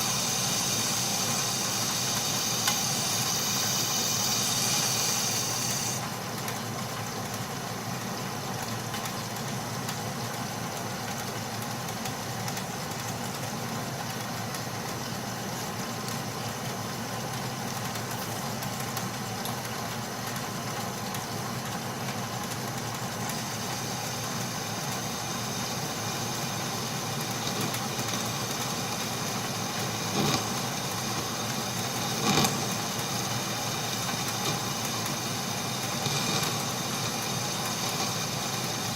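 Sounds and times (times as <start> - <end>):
metal lathe cutting steel: 0.0 - 6.2, 23.6 - 38.9.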